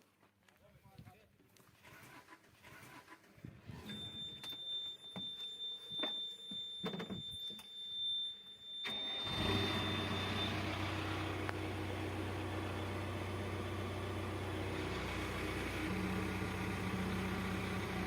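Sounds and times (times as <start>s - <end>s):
diesel engine starting and idling: 1.8s - 4.4s, 8.8s - 18.0s
steady high-pitched beep: 3.9s - 10.8s.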